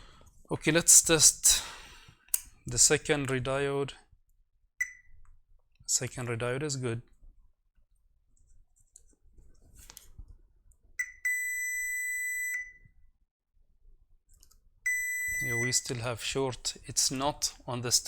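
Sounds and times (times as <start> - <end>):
multimeter continuity beep: 4.8 - 5.1, 11.0 - 12.9, 14.9 - 15.8.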